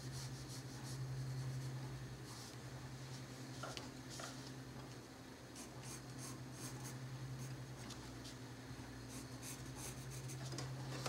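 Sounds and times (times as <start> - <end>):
steady low hum: 0.0 - 11.0
pencil scratching on paper: 9.1 - 10.5.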